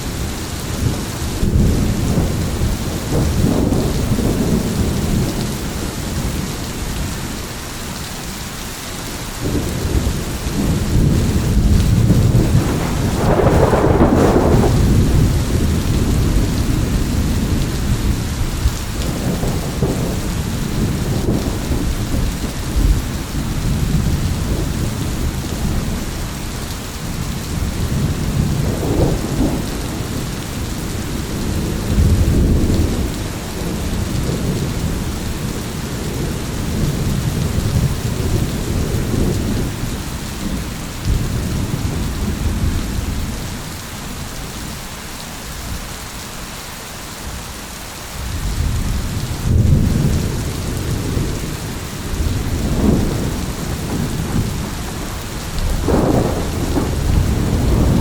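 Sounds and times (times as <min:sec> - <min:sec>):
rolling thunder: 0:00.0 - 0:07.5, 0:09.4 - 0:43.7, 0:48.2 - 0:58.0
heavy rain: 0:00.0 - 0:58.0.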